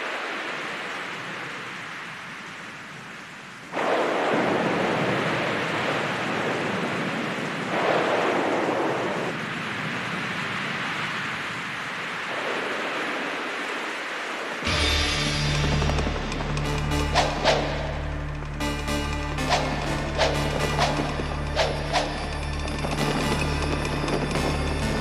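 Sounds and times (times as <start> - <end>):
loud rushing noise: 14.6 - 23.4.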